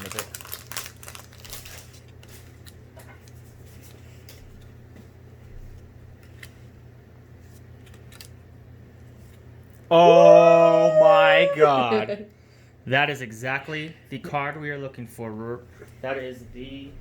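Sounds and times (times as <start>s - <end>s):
trading cards being flipped: 7.4s - 8.4s.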